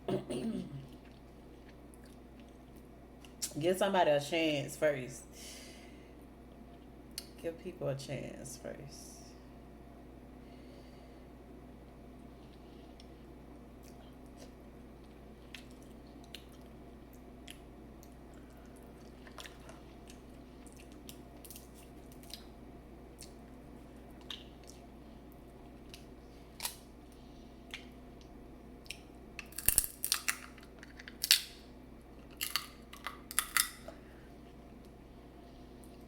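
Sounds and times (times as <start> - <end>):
wet chewing: 13.8 - 22.5
shells crunching: 29.4 - 31.6, 32.2 - 33.8.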